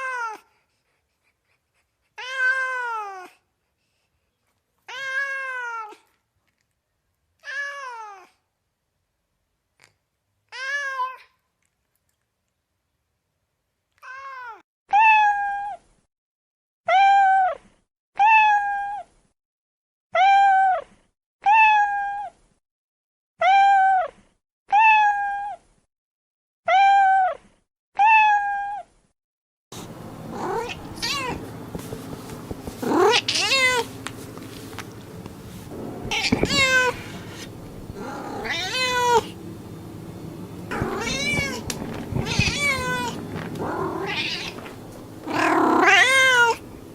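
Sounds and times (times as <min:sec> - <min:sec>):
steady background hum: 0:29.8 - 0:46.9
cat meowing: 0:30.4 - 0:31.4, 0:32.8 - 0:33.9, 0:36.0 - 0:37.1, 0:38.0 - 0:39.3, 0:40.7 - 0:44.7, 0:45.3 - 0:46.6.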